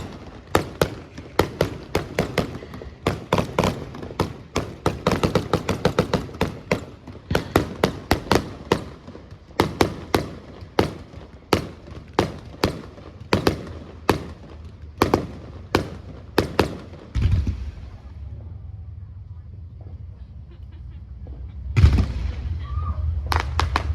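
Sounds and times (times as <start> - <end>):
fireworks cracking: 0.0 - 18.2, 21.6 - 23.9
low rumble: 17.2 - 23.9.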